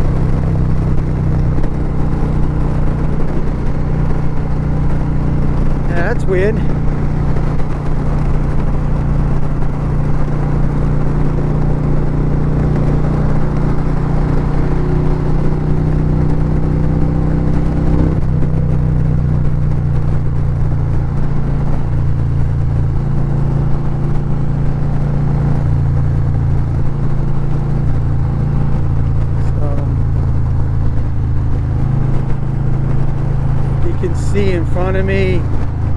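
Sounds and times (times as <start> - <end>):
motorcycle engine running: 0.0 - 35.9
wind rushing over microphone: 0.0 - 35.9.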